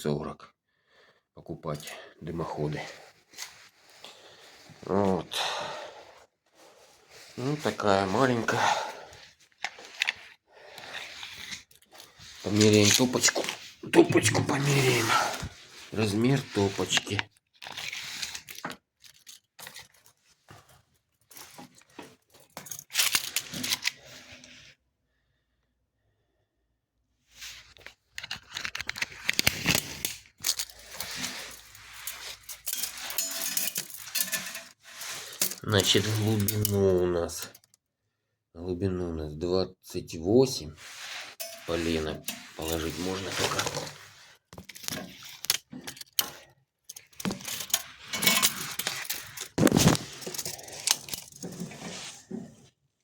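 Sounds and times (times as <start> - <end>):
metal tape measure clicking and scraping: 10.8 - 15.1, 22.6 - 24.0, 28.2 - 37.7, 40.9 - 52.1.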